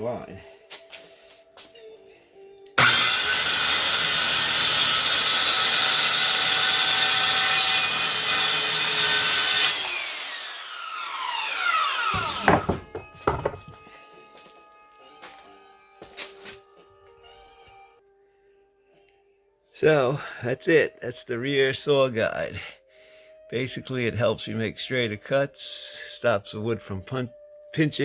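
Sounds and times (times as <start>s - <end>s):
circular saw cutting board: 2.8s - 13.7s
knocks: 12.1s - 13.8s.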